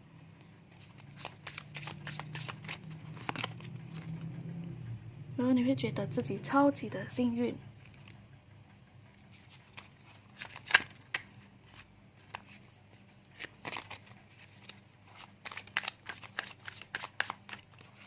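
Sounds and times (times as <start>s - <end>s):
cards clicking and rustling: 0.7s - 4.4s, 9.3s - 18.0s.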